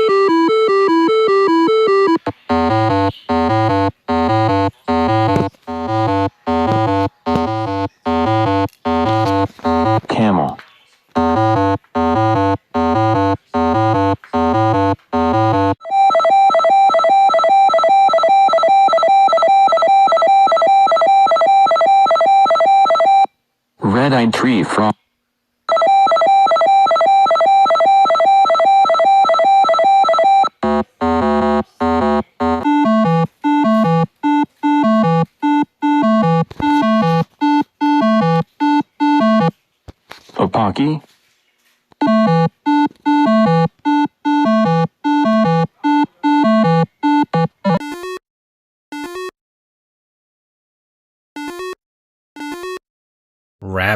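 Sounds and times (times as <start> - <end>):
fast pulsing repeated tone: 0.0 - 10.0, 11.2 - 21.2, 30.3 - 34.1
electronic synthesizer music: 0.0 - 10.1, 11.2 - 18.2, 30.5 - 38.6.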